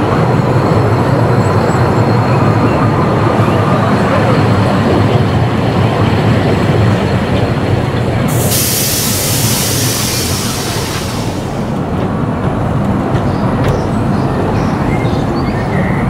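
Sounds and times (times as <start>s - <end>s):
small train rumbling and rattling: 0.0s - 16.0s
loud hiss: 8.3s - 11.8s.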